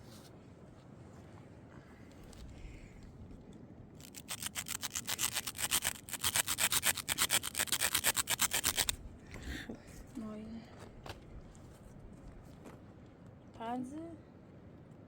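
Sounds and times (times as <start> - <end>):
rapid scraping strokes: 4.0 - 9.0.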